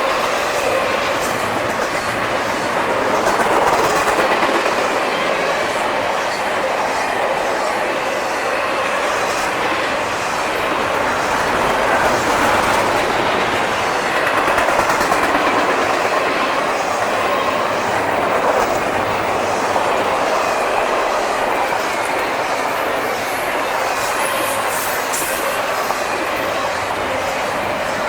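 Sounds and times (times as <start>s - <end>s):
freight train rumbling past: 0.0s - 28.0s
wheels clattering over rails: 9.4s - 21.7s.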